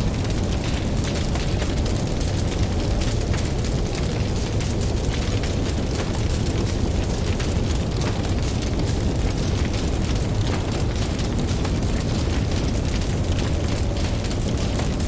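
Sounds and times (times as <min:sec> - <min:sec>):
campfire crackling and popping: 0:00.0 - 0:15.0
deep rumble: 0:00.0 - 0:15.0.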